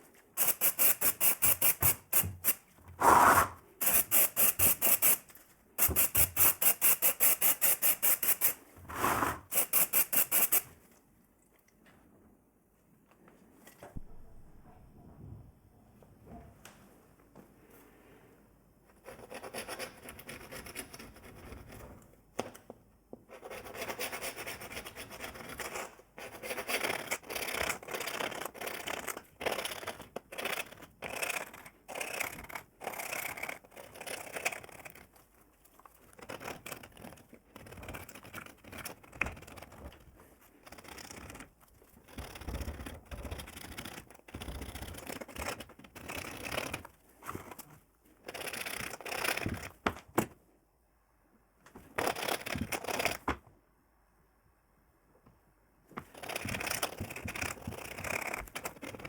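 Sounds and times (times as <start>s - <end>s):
hand scraping strokes: 3.0s - 4.0s, 8.9s - 9.6s.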